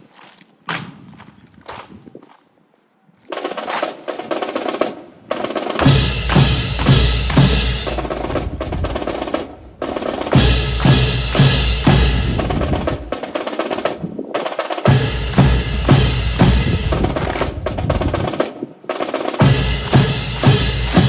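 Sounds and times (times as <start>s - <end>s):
snare drum rolls: 3.3s - 21.0s
heavy bass drum beats: 5.8s - 13.3s, 14.8s - 18.4s, 19.4s - 21.0s.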